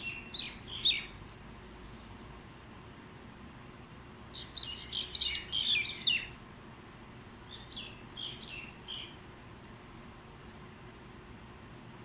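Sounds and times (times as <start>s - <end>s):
birds chirping: 0.0s - 1.2s, 4.3s - 6.4s, 7.4s - 9.3s.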